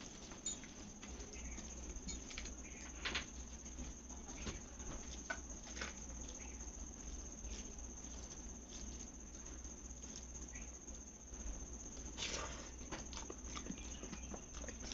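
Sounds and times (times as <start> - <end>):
faint high whine: 0.0 - 14.9
wet chewing clicks and smacks: 13.0 - 14.9.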